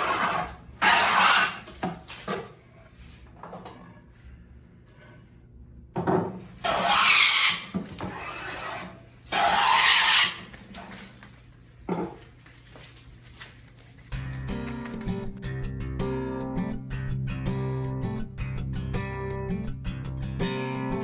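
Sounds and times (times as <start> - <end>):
hand tool scraping wood: 0.0 - 2.5, 6.6 - 11.1.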